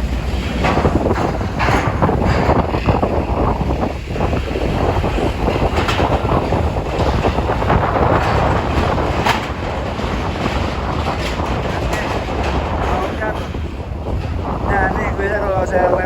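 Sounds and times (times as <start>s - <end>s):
steady low rumble: 0.0s - 16.0s
strong wind buffeting microphone: 0.0s - 16.0s.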